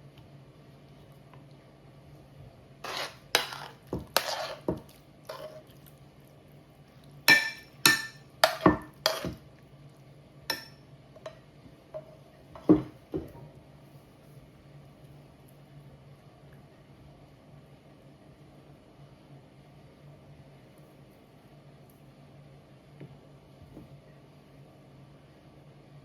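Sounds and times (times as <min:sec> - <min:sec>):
utensils clinking against dishes: 0:07.3 - 0:09.4.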